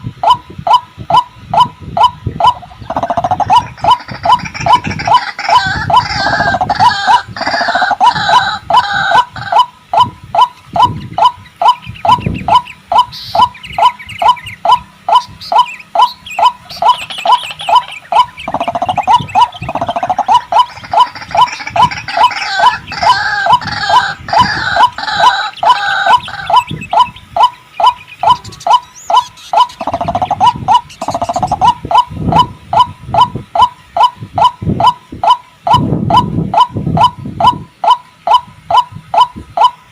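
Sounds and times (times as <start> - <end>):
waterhen calling: 0.0 - 39.9
croaking gurgling chorus: 1.1 - 11.4, 12.1 - 38.0.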